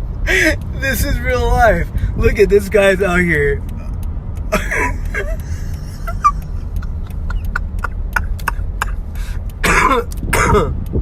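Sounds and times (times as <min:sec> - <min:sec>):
vehicle idling: 0:00.0 - 0:11.0
person's voice: 0:00.3 - 0:03.8.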